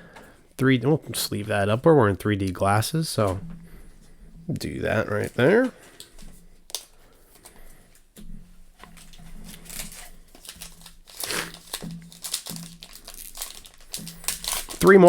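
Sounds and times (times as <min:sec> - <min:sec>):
foil wrapper crinkling and tearing: 0:04.9 - 0:07.5, 0:08.8 - 0:15.0.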